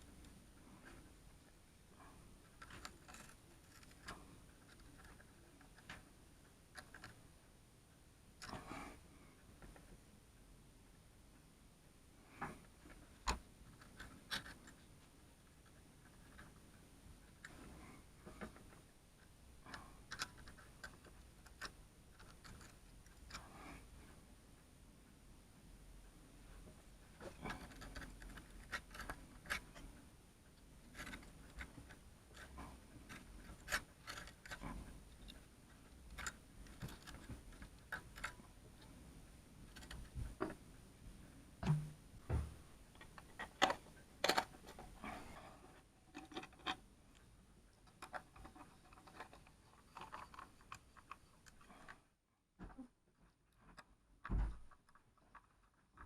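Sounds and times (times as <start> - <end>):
small hard objects clicking and scraping: 2.5 - 6.0, 30.9 - 38.8, 47.8 - 52.1, 53.5 - 56.0.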